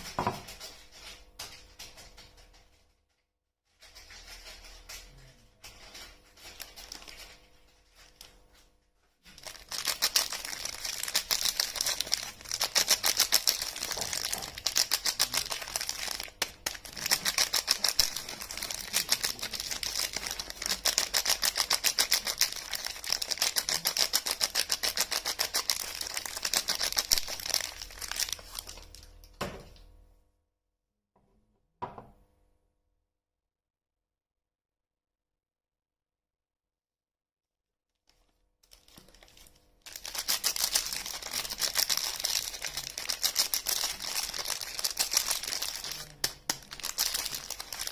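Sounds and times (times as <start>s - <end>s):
packaging crinkling: 3.8s - 8.6s, 9.2s - 29.3s, 38.1s - 47.9s.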